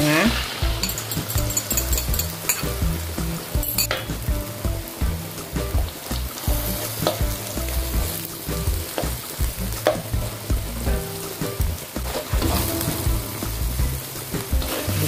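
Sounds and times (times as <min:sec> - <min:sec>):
food sizzling in a wok: 0:00.0 - 0:15.0
spatula scraping wok: 0:00.2 - 0:04.3, 0:06.2 - 0:15.0
spatula clicking against pan: 0:00.8 - 0:02.7.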